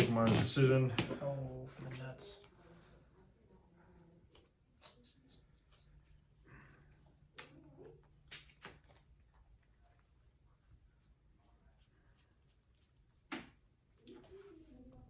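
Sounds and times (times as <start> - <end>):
trading cards tapping and rustling: 0.0 - 2.1.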